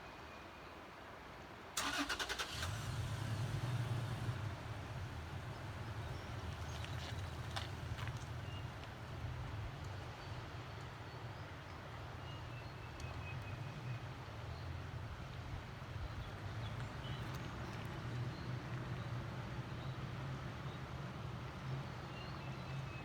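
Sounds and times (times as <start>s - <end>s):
vehicle engine and road rumble: 1.8s - 23.0s.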